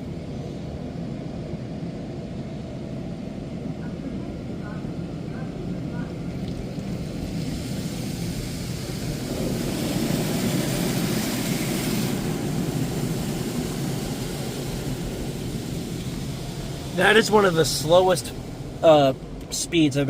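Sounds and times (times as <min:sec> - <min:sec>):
car wash machine running: 0:00.0 - 0:20.0
high-pressure water spraying: 0:06.0 - 0:20.0.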